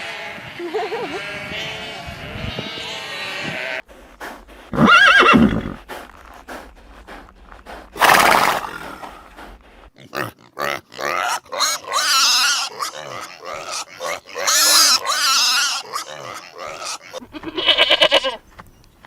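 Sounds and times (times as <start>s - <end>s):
quavering bleat-like calls: 0.0s - 3.9s, 12.7s - 18.4s
harsh animal call: 0.6s - 9.9s.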